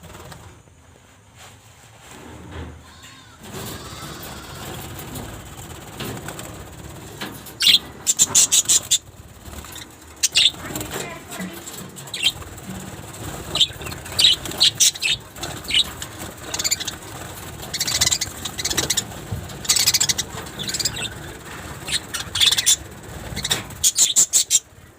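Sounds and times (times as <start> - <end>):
wings fluttering: 0.0 - 0.9, 3.4 - 24.9
small birds chirping: 7.0 - 24.9.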